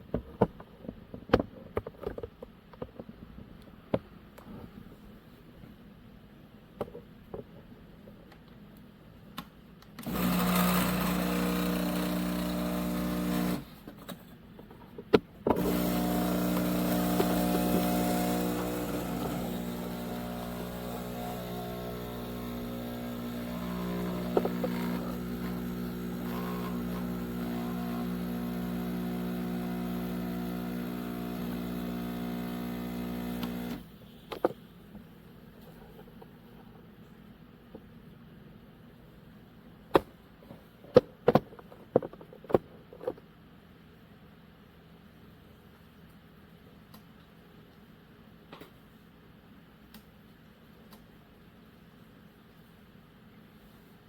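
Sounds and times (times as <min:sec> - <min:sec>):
espresso machine pump humming: 0:10.0 - 0:13.7, 0:15.6 - 0:33.9.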